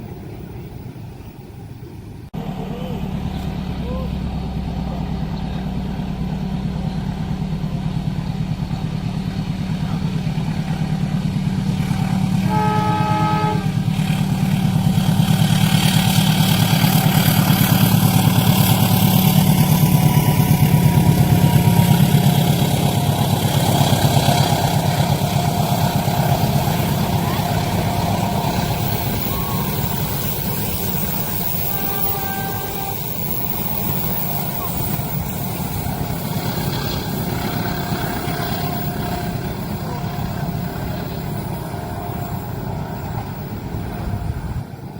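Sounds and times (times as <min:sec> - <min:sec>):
diesel locomotive engine rumble: 0:00.0 - 0:44.9
train horn blast: 0:11.8 - 0:44.8
wheels clattering over rails: 0:13.7 - 0:44.9.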